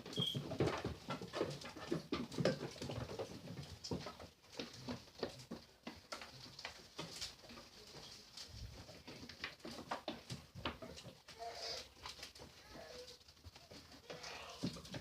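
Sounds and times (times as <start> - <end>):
goats knocking and shuffling: 0.0 - 15.0.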